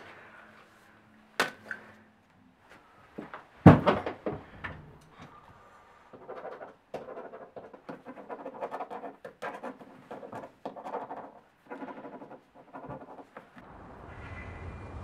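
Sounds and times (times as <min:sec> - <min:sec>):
pen scratching on paper: 0:06.2 - 0:13.4.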